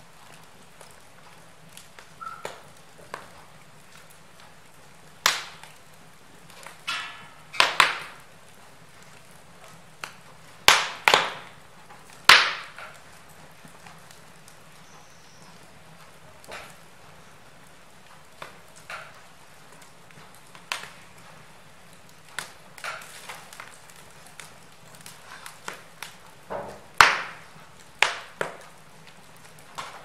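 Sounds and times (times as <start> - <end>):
burning logs popping: 0.0 - 30.0
wood fire crackling: 0.0 - 30.0.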